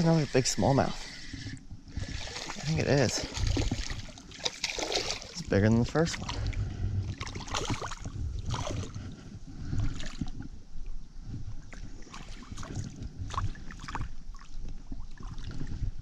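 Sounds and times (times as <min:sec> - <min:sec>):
stream water splashing: 0:02.1 - 0:06.4, 0:07.2 - 0:08.9
sharp splashes: 0:02.2 - 0:05.5
low rumble: 0:05.5 - 0:13.8.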